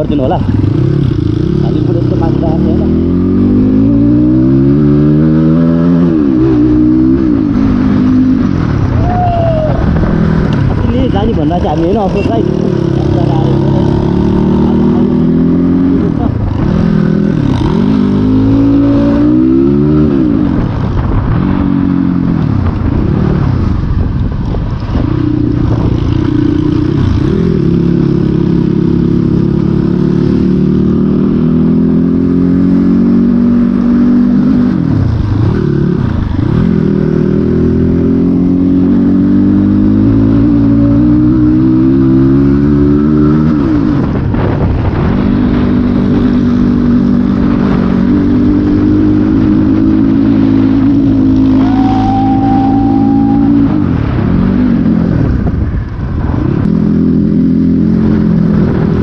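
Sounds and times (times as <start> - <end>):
dirt bike engine revving: 0.0 - 8.5, 11.7 - 20.7.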